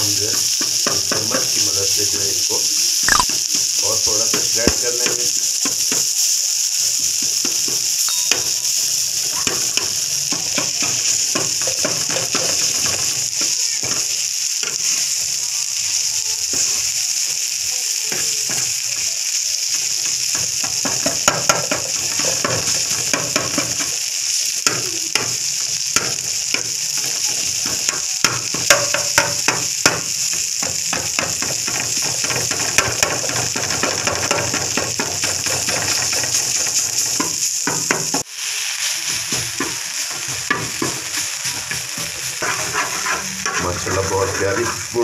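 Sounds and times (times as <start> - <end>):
chicken sizzling on griddle: 0.0 - 45.0
metal spatula scraping griddle: 39.0 - 45.0.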